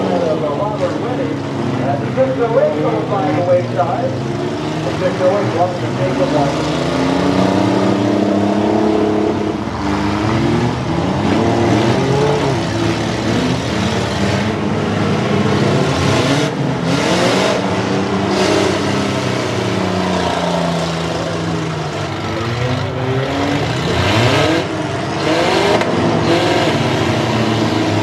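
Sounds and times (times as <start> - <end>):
engines revving: 0.0 - 28.0.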